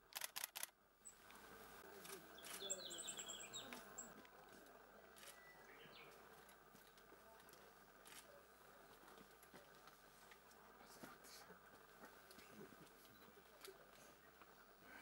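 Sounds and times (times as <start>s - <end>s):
sharp clicks: 0.1s - 0.7s
bird chirping: 2.3s - 4.2s.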